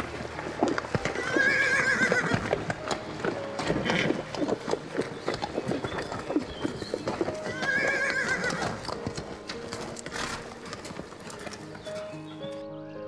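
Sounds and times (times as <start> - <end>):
hooves clip-clopping: 0.0 - 12.7
horse whinnying: 0.7 - 2.8, 3.4 - 9.1.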